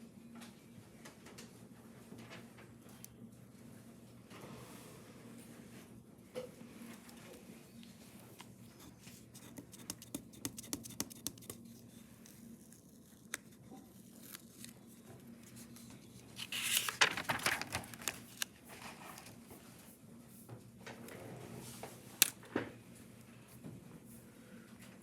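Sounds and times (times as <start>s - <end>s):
paper crackling and rustling: 11.6s - 19.5s.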